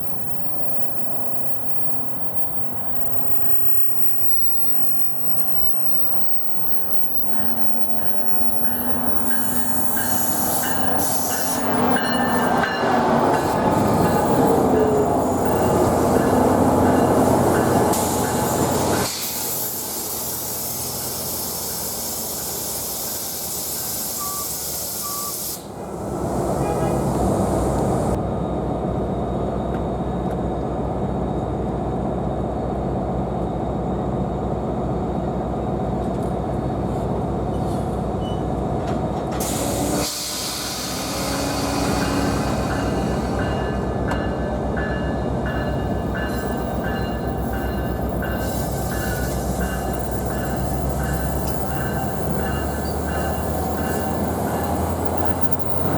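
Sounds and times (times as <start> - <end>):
train wheels rumbling on rails: 0.0 - 55.9
train hiss: 3.0 - 28.2, 39.3 - 55.9.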